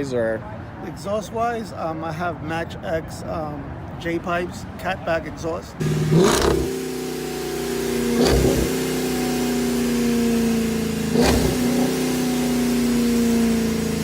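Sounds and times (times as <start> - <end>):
car engine idling and revving: 5.8 - 14.0.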